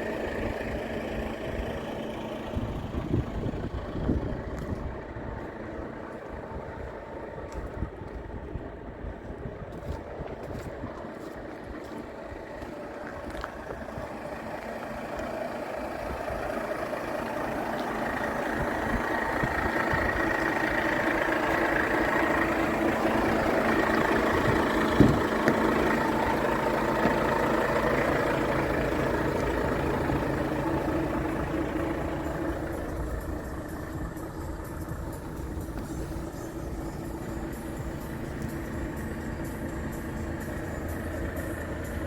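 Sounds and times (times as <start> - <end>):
truck diesel engine running: 0.0 - 42.0.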